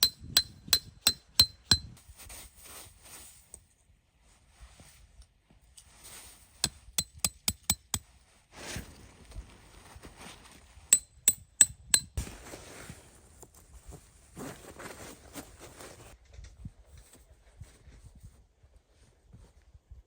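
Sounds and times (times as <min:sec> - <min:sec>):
soft rustling: 0:12.2 - 0:16.2.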